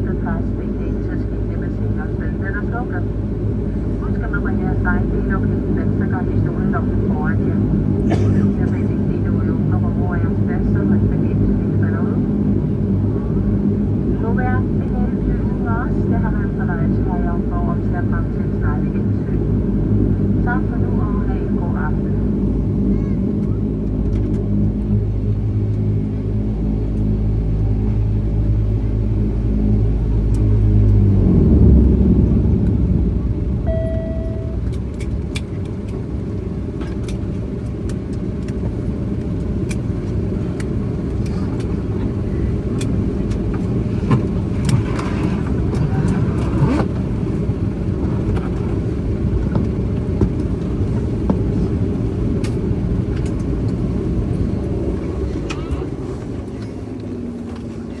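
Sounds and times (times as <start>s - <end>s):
airliner engines humming: 0.0s - 58.0s
rough rumble: 28.0s - 58.0s
brief single tone: 33.6s - 34.7s.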